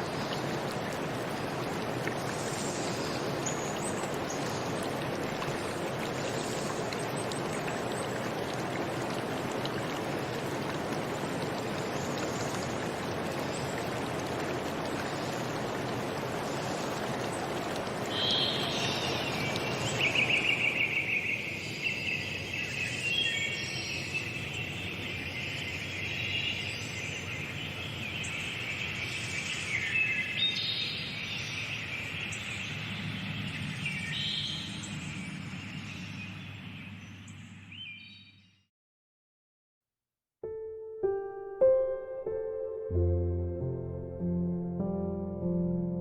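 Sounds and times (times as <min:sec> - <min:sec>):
running water: 0:00.0 - 0:36.2.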